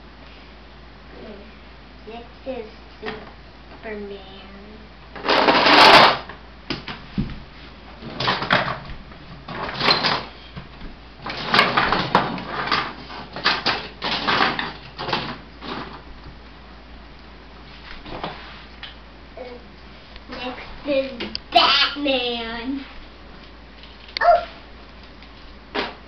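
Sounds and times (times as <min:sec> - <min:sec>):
toy trucks clattering and scraping: 0:05.2 - 0:06.3, 0:11.3 - 0:16.0.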